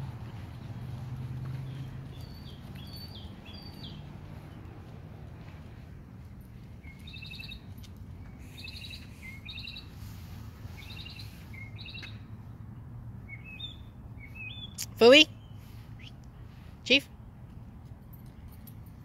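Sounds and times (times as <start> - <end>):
songbird trilling: 8.6 - 9.9, 10.8 - 12.1, 13.3 - 14.8.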